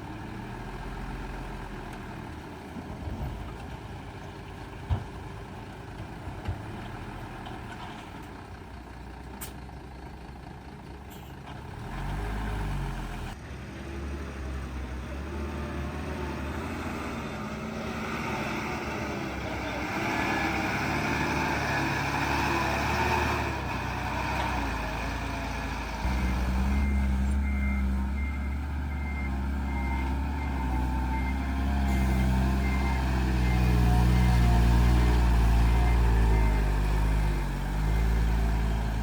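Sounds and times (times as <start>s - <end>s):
heavy diesel engines running: 0.0s - 14.0s, 14.6s - 39.0s
engine revving: 11.7s - 39.0s.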